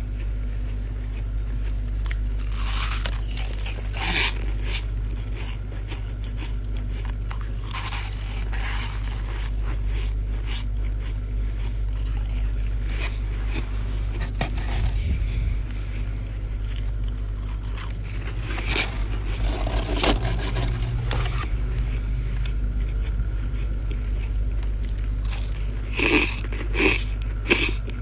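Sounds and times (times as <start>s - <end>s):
crunching frost in teeth: 0.0s - 28.0s
low hum: 0.0s - 28.0s
frost being scraped: 7.5s - 10.0s, 12.0s - 15.4s, 16.6s - 21.6s.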